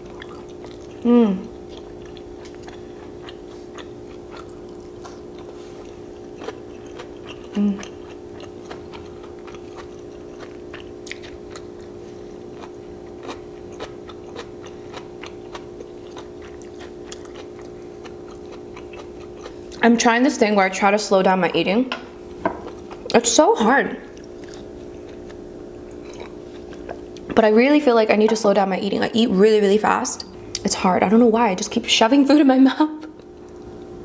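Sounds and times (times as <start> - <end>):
person chewing noodles: 0.0 - 19.8, 22.5 - 23.2, 24.1 - 27.3
low background hum: 0.0 - 34.0
person humming mm: 1.0 - 1.5, 7.5 - 7.9.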